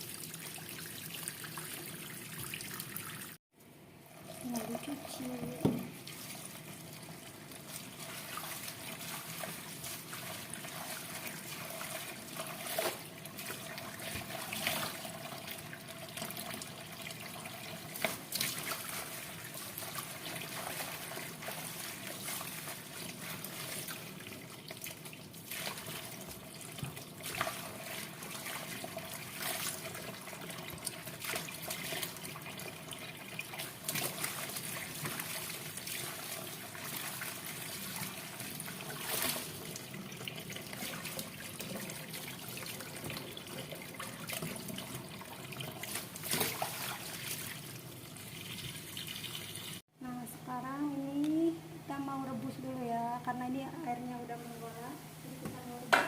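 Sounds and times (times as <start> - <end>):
water splashing: 33.4 - 49.4.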